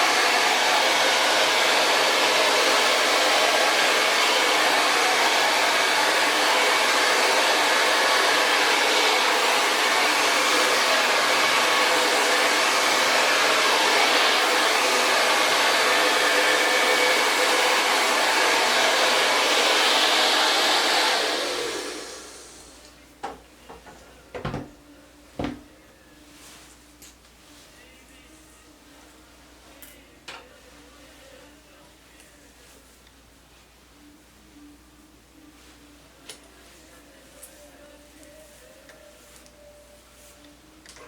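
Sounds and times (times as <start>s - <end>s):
hair dryer blowing: 0.0s - 22.9s.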